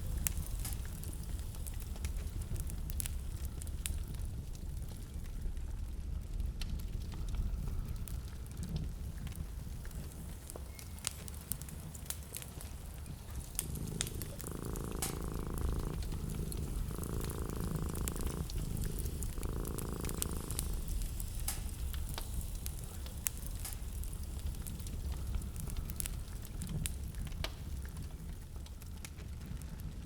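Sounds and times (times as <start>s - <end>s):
wood fire crackling and popping: 0.0s - 30.0s
low rumble: 13.2s - 22.0s.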